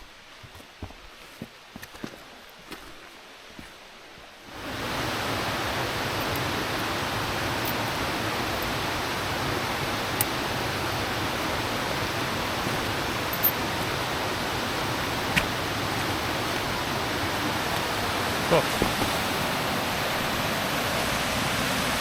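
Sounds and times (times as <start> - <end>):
waterfall roaring: 4.4 - 22.0.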